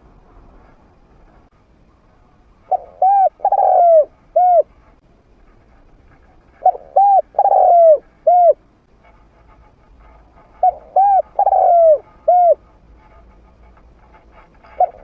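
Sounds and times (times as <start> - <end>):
dove cooing: 2.7 - 4.7, 6.5 - 8.6, 10.6 - 12.6, 14.8 - 15.0.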